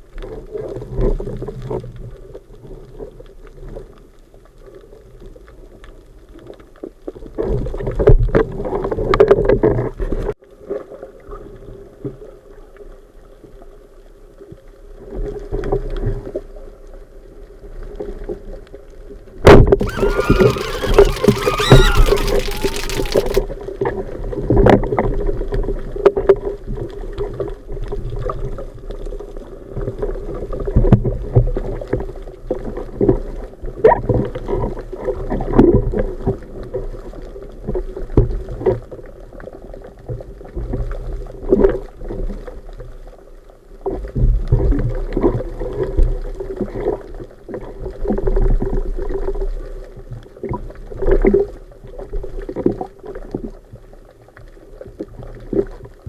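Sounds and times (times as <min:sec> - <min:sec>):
water moving underwater: 0:19.8 - 0:23.4, 0:36.7 - 0:56.0.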